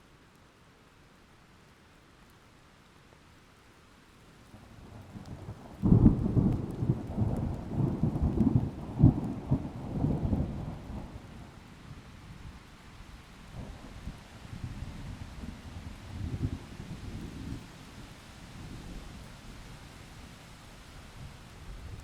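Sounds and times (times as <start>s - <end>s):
light rain hiss: 0.0s - 22.0s
thunder rumbling: 5.5s - 11.3s.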